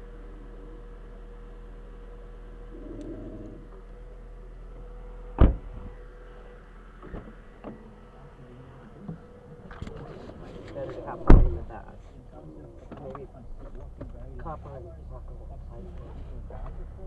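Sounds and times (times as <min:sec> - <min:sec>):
car humming: 0:00.0 - 0:17.0
loud thump: 0:05.4 - 0:05.9, 0:11.2 - 0:11.7.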